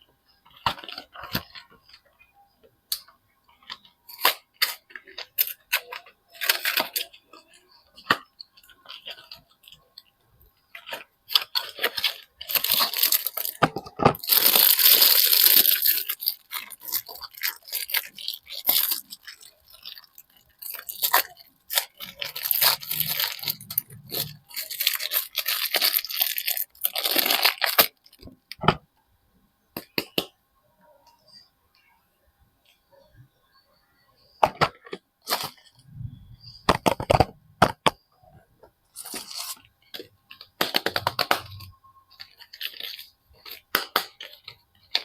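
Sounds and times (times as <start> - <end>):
wrapping crinkling and tearing: 0.4 - 2.2, 3.5 - 28.6, 38.9 - 45.0.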